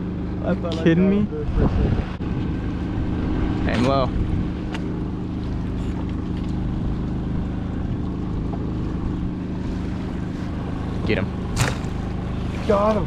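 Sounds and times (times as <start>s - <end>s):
generator engine hum: 0.0s - 13.0s.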